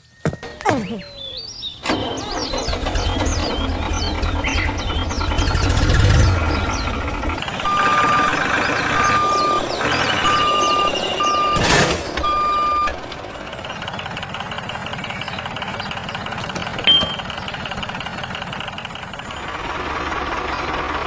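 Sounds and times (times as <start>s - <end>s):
birds chirping: 0.0s - 21.0s
low engine rumble: 0.5s - 21.0s
reversing alarm beeping: 7.5s - 13.0s, 16.8s - 17.4s.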